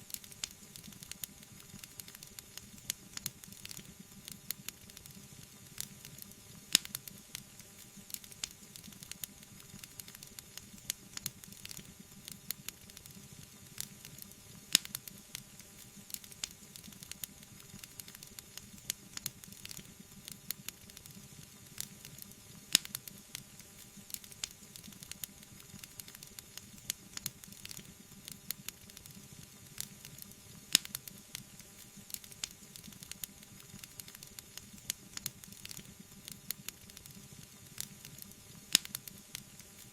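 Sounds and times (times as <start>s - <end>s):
wood fire crackling: 0.0s - 39.9s
fire hissing: 0.1s - 39.9s
sharp fire pops: 29.8s - 31.1s, 37.8s - 39.1s.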